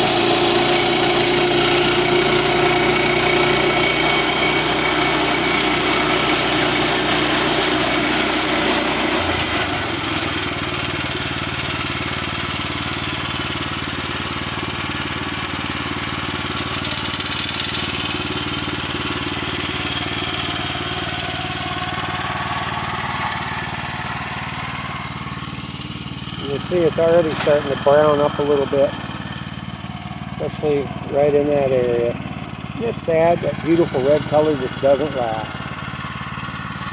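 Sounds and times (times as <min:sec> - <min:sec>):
sawmill engine sawing log: 0:00.0 - 0:36.9.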